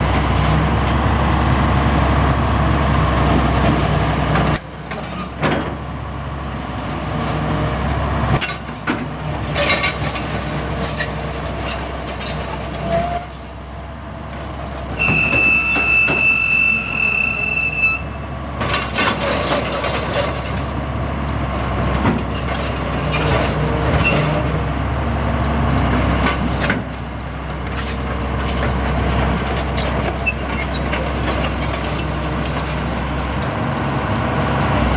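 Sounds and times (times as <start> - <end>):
excavator diesel engine humming: 0.0 - 34.9
metal clanks and squeaks: 8.4 - 13.9, 15.0 - 20.7, 21.5 - 24.6, 27.7 - 33.0.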